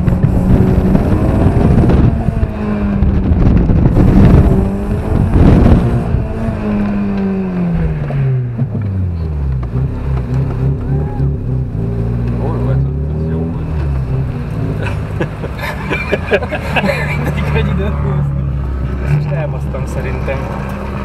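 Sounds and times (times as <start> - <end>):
tyre and wind noise: 0.0 - 12.5
car engine at high revs: 0.0 - 21.0.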